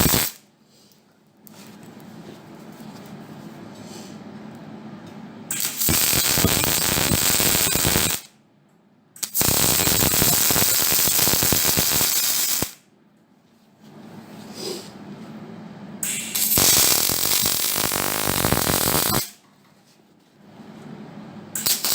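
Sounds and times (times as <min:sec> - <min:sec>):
welding crackle: 0:00.0 - 0:00.4, 0:05.5 - 0:08.3, 0:09.2 - 0:12.8, 0:16.0 - 0:19.4, 0:21.6 - 0:21.9.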